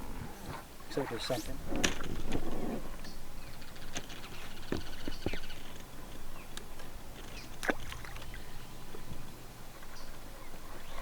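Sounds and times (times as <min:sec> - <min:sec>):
water lapping against boat hull: 0:03.7 - 0:11.0.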